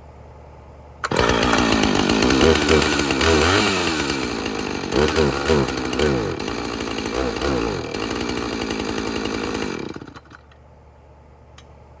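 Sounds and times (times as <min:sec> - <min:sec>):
chainsaw running and revving: 0:01.0 - 0:10.4.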